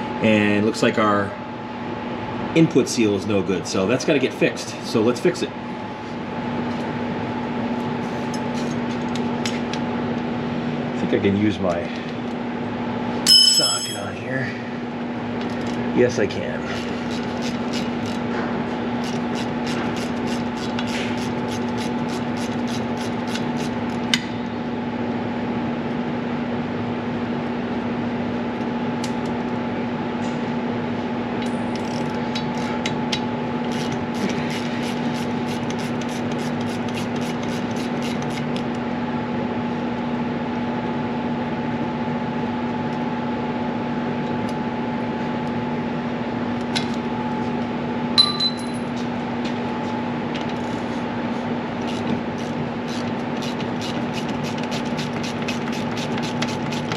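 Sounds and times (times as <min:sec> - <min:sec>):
steady hum: 0:00.0 - 0:56.9
metal tools clinking: 0:13.3 - 0:14.2, 0:48.2 - 0:48.9.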